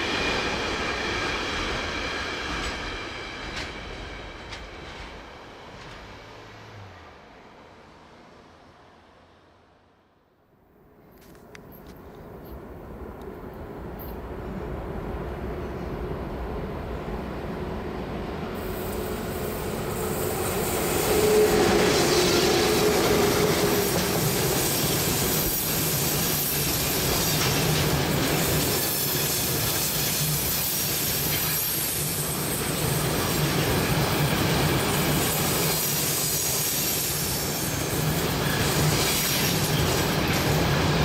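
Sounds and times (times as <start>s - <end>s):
train wheels squealing: 0.0s - 5.2s, 18.6s - 41.0s
train running on rails: 0.0s - 41.0s.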